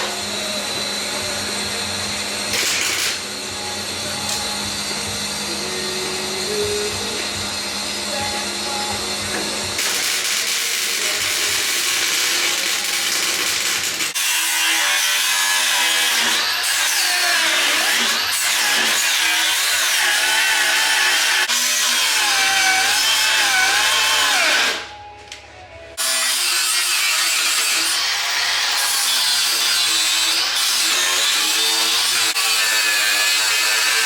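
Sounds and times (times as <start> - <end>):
power tool whining under load: 0.0 - 25.1.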